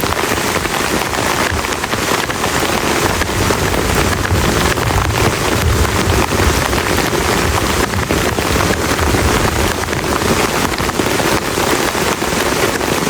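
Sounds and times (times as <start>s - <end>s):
heavy rain falling: 0.0s - 13.0s
low rumble: 3.1s - 9.8s.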